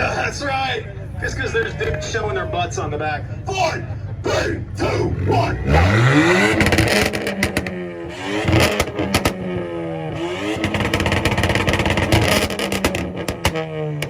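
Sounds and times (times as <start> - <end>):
car engine revving: 0.0 - 14.0
exhaust cracks and pops: 6.5 - 7.8, 8.4 - 9.6, 10.6 - 14.0.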